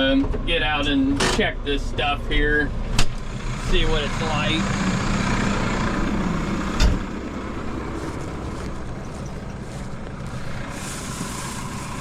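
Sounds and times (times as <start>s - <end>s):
tractor engine idling: 0.0s - 12.0s
sharp thump: 6.8s - 7.1s.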